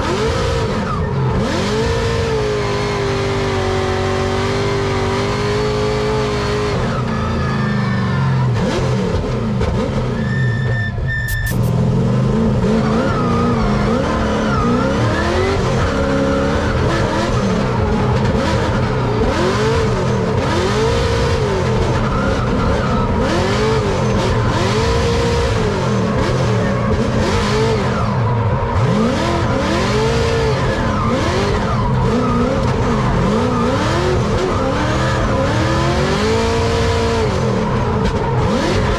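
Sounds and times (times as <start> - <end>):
car engine revving: 11.3 - 38.9.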